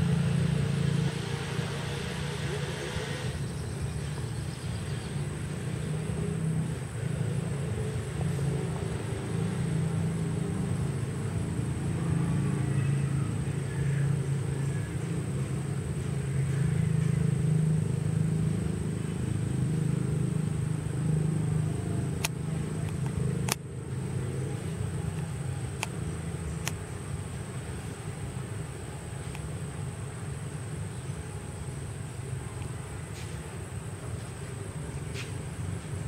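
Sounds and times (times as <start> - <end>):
low motor rumble: 0.0 - 36.0
sharp clicks: 22.2 - 23.7.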